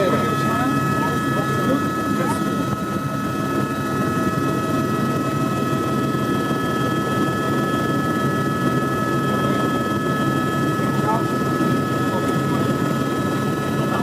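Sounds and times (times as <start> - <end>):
helicopter rotor and engine: 0.0 - 14.0.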